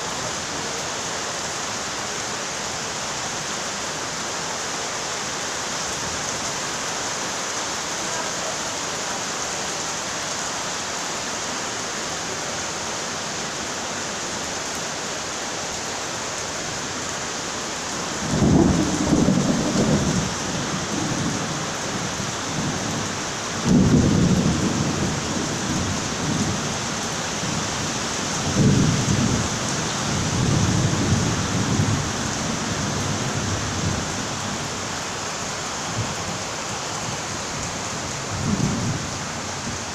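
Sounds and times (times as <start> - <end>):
steady rain falling: 0.0 - 39.9
thunder rolling: 18.2 - 20.3.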